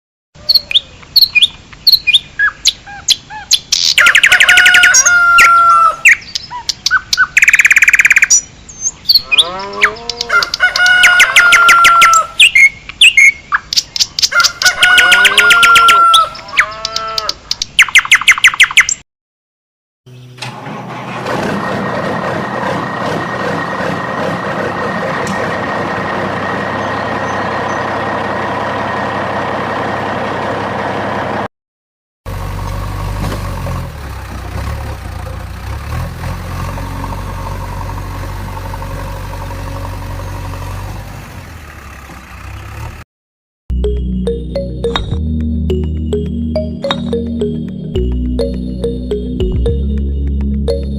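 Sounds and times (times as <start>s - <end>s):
bird-like chirping and trills: 0.4s - 19.0s
steady mechanical hum: 20.1s - 31.5s.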